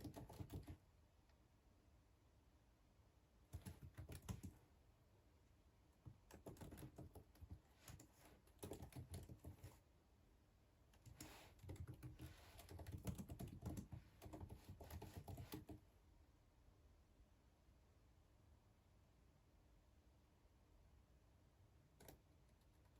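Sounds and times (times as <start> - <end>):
typing on computer keyboard: 0.0 - 0.8, 3.5 - 4.6, 6.0 - 9.8, 11.0 - 15.8, 22.0 - 22.9.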